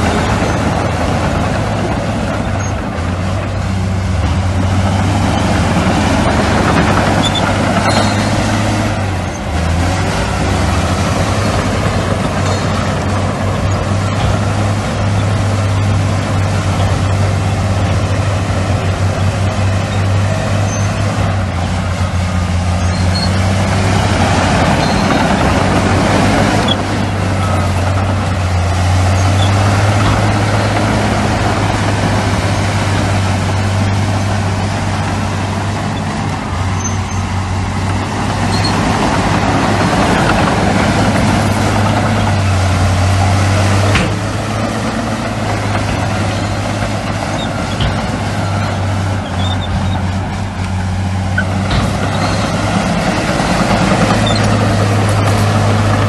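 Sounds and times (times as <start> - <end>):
heavy diesel engine droning: 0.0 - 56.0.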